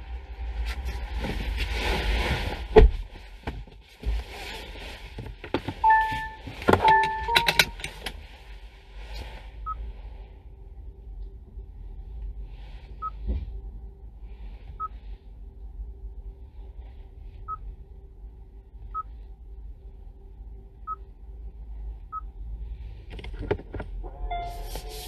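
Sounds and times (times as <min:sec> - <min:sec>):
faint hum: 0:00.0 - 0:03.5, 0:05.8 - 0:25.0
steady low rumble: 0:00.0 - 0:25.0
faint high-pitched electronic beeps: 0:05.8 - 0:07.9.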